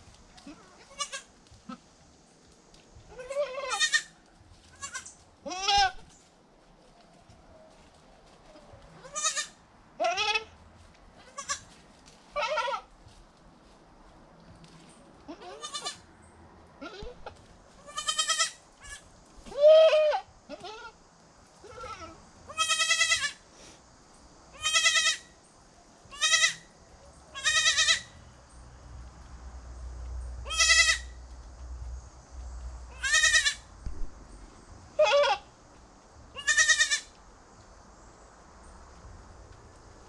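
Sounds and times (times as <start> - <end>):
goat kids bleating: 0.4 - 1.8, 3.1 - 6.0, 9.0 - 10.5, 11.2 - 11.7, 12.3 - 12.9, 15.3 - 16.0, 16.8 - 21.0, 21.6 - 23.4, 24.5 - 25.4, 26.1 - 26.7, 27.3 - 28.2, 30.4 - 31.2, 32.9 - 33.7, 35.0 - 35.5, 36.3 - 37.2.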